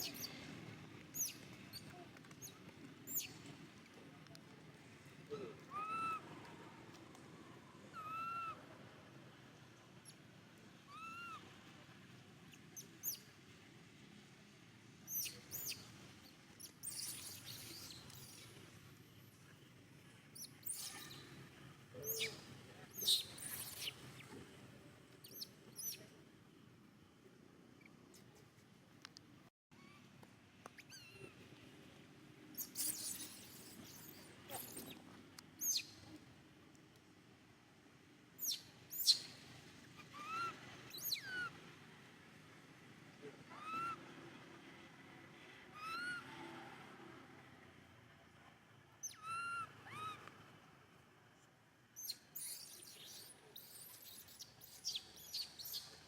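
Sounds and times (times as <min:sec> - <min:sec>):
baby monkey whistling calls: 0:01.2 - 0:01.4, 0:03.1 - 0:03.3, 0:05.7 - 0:06.2, 0:07.9 - 0:08.6, 0:10.9 - 0:11.4, 0:15.1 - 0:15.8, 0:22.0 - 0:22.4, 0:23.0 - 0:23.9, 0:25.2 - 0:26.0, 0:32.6 - 0:35.0, 0:35.6 - 0:36.0, 0:38.4 - 0:39.3, 0:40.2 - 0:41.5, 0:43.6 - 0:44.0, 0:49.0 - 0:50.2, 0:52.0 - 0:55.9.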